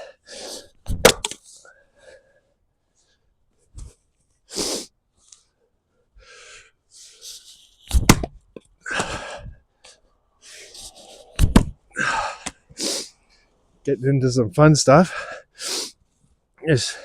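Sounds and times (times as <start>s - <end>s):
axe cracking into wood: 0.9s - 1.4s, 7.9s - 8.4s.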